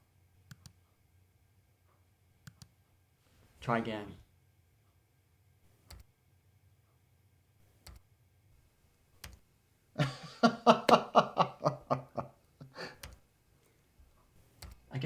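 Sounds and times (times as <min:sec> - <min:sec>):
computer keyboard key presses: 0:09.2 - 0:09.4, 0:13.0 - 0:13.2
man laughing: 0:10.0 - 0:13.1.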